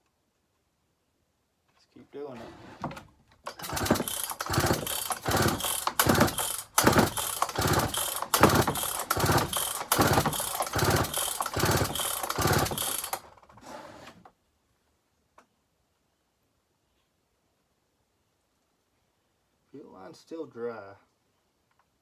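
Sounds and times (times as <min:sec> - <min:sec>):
chainsaw recoil starter pulls: 0:02.3 - 0:14.2
engine turning over: 0:02.4 - 0:13.7.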